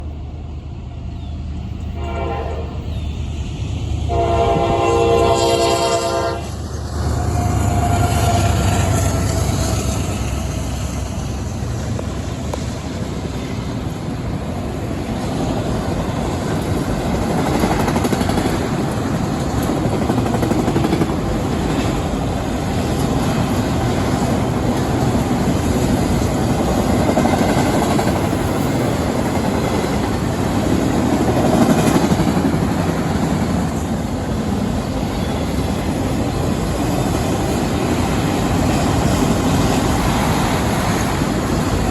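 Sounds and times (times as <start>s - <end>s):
steel wheels on rail: 0.0s - 41.9s
train rumbling past: 0.0s - 41.9s
train horn: 1.9s - 2.9s, 4.1s - 9.7s.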